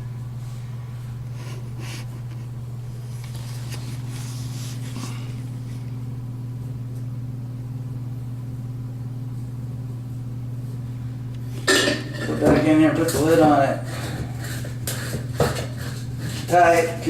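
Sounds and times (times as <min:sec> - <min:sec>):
steady low hum: 0:00.0 - 0:17.0
dauber scrubbing pipe: 0:12.8 - 0:17.0.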